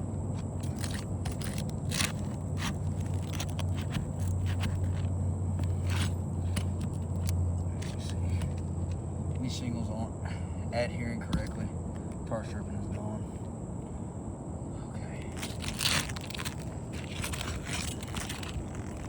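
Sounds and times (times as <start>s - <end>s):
steady low hum: 0.0s - 19.0s
shingles being pried loose: 0.3s - 9.0s, 15.3s - 19.0s.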